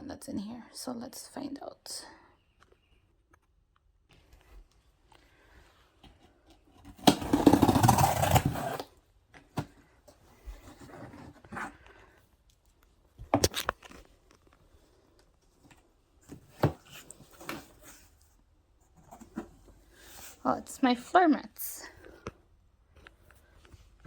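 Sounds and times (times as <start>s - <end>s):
cardboard and packaging rustling: 4.2s - 12.4s, 13.3s - 20.4s
cardboard ripping: 7.0s - 8.9s.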